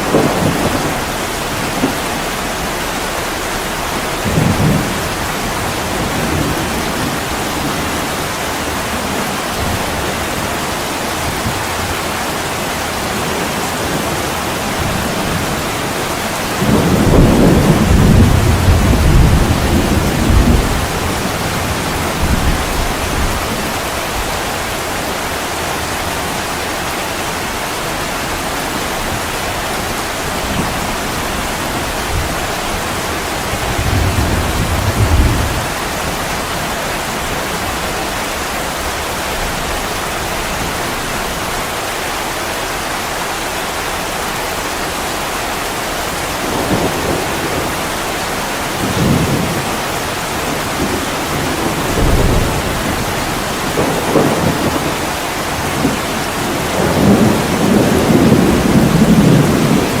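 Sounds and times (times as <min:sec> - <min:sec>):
heavy rain: 0:00.0 - 1:00.0.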